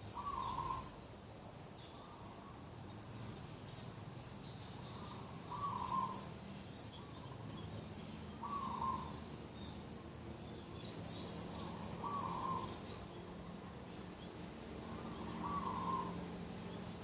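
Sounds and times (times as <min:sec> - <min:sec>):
small birds chirping: 0:00.0 - 0:17.0
dove cooing: 0:00.2 - 0:00.9, 0:05.0 - 0:06.3, 0:08.4 - 0:09.2, 0:12.0 - 0:12.8, 0:14.9 - 0:16.3.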